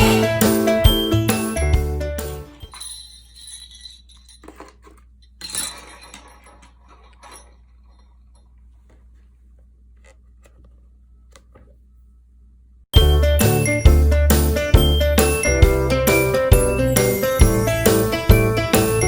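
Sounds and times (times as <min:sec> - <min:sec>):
objects clinking on a table: 0:02.2 - 0:08.9.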